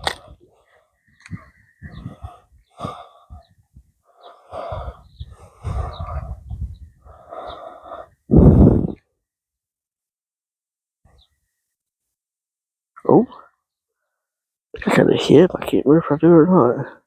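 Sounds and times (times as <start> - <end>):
person breathing heavily: 0.0 - 9.1.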